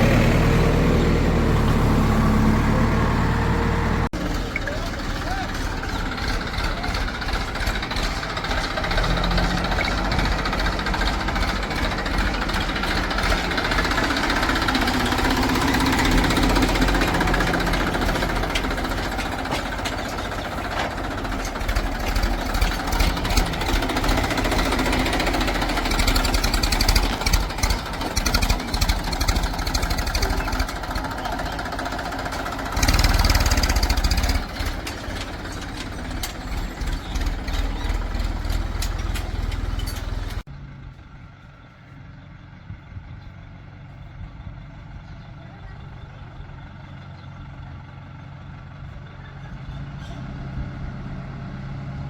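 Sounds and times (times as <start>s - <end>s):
diesel engines running: 0.0s - 52.0s
clattering knocks: 6.0s - 40.4s.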